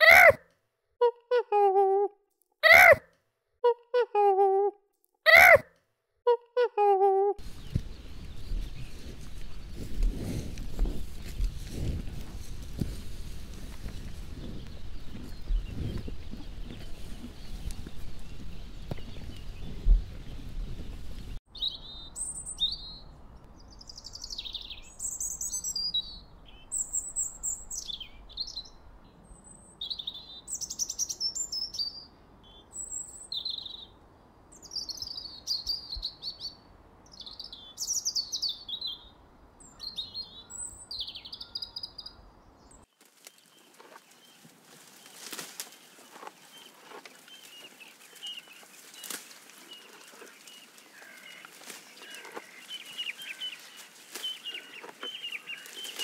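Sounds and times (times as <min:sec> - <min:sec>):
robin singing: 0:13.9 - 0:44.4, 0:45.8 - 0:56.0.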